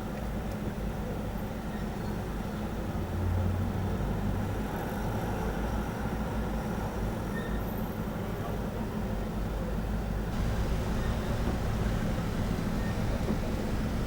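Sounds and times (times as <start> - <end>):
vehicle engine rumbling: 10.3 - 14.0.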